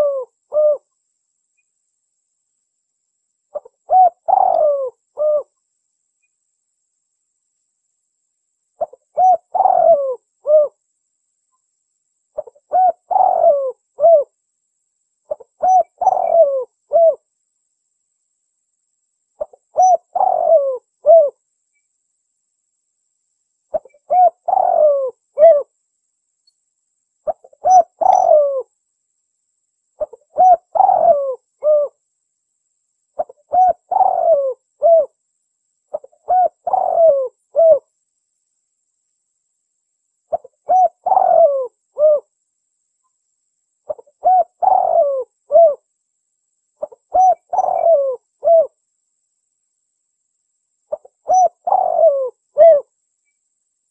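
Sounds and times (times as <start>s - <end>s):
dove cooing: 0.0s - 0.9s, 3.5s - 5.6s, 8.8s - 10.8s, 12.4s - 14.3s, 15.3s - 17.2s, 19.4s - 21.4s, 23.7s - 25.7s, 27.3s - 28.7s, 30.0s - 32.0s, 33.2s - 35.2s, 35.9s - 37.8s, 40.3s - 42.3s, 43.9s - 45.8s, 46.8s - 48.8s, 50.9s - 52.9s.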